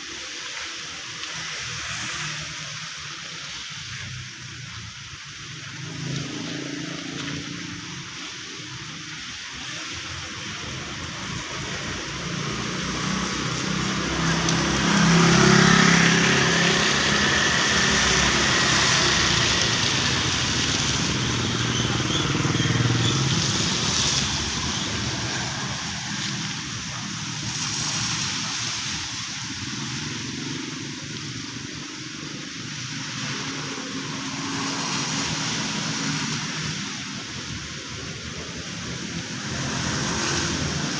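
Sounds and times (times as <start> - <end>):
heavy rain falling: 0.0 - 40.9
vehicle passing: 10.9 - 29.0, 39.4 - 40.9.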